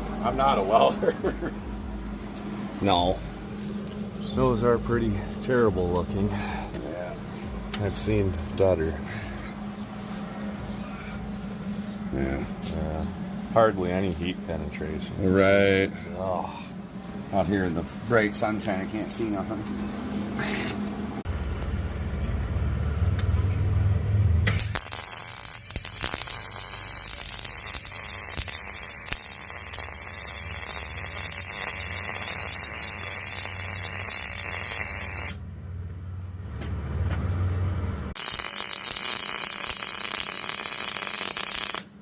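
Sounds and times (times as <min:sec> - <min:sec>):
welder low hum: 0:00.0 - 0:35.5, 0:38.0 - 0:42.0
welding arc hissing and crackling: 0:24.5 - 0:35.4, 0:38.2 - 0:41.9.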